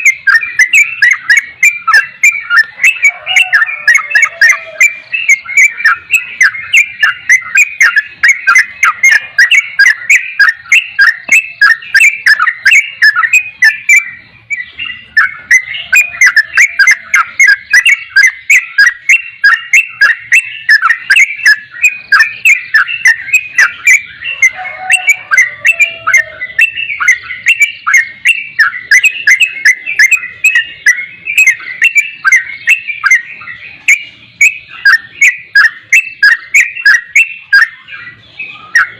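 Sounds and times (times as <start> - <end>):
bird chirping rapidly: 0.0 - 38.9.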